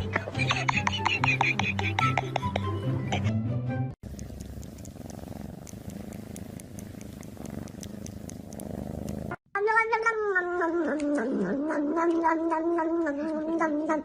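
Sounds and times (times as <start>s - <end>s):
cat purring: 4.0s - 9.4s.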